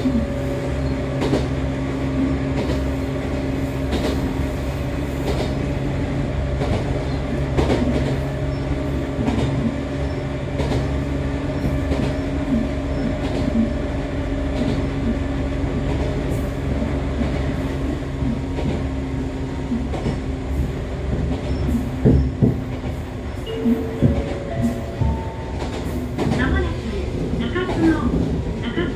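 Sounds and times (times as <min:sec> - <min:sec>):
train motor hum: 0:00.0 - 0:28.9
wheels clicking over rail joints: 0:02.5 - 0:04.5, 0:06.5 - 0:13.8, 0:14.4 - 0:28.7
loud knocks: 0:22.0 - 0:22.7.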